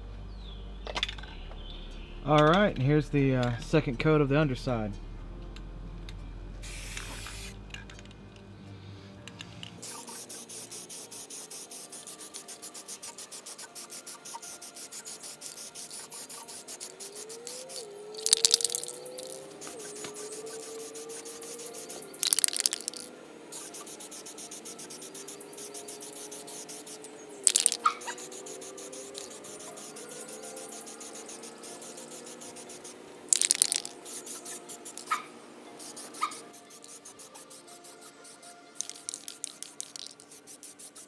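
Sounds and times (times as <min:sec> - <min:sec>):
aerosol paint spraying: 0:06.6 - 0:07.6, 0:09.8 - 0:41.0
rapid ticking: 0:09.8 - 0:41.0.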